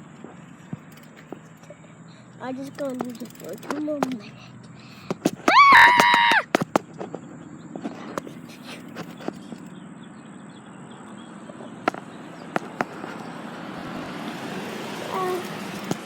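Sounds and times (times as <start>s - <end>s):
bike rolling noise: 0.0s - 16.0s.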